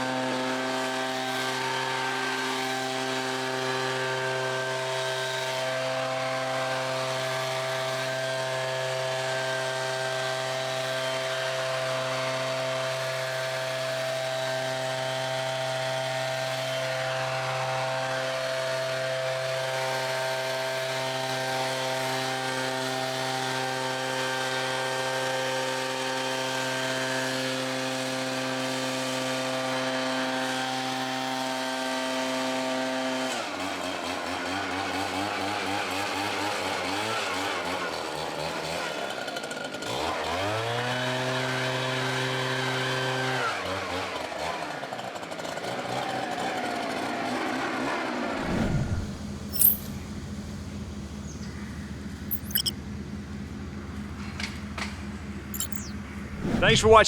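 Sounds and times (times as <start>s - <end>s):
small gasoline engine running: 0.0s - 22.5s.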